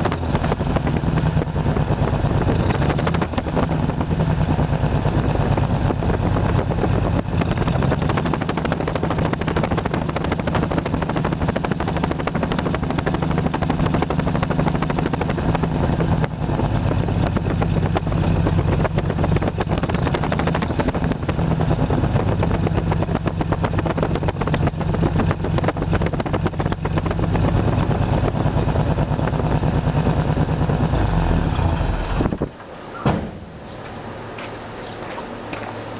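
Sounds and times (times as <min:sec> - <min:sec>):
engine running rough: 0:00.0 - 0:35.9
short thump: 0:32.2 - 0:33.6.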